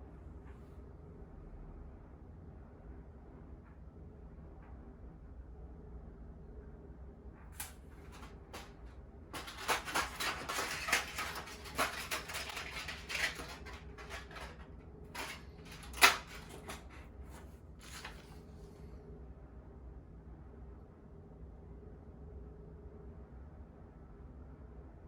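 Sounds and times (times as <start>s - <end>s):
gear rustling and clicking: 7.6s - 18.4s.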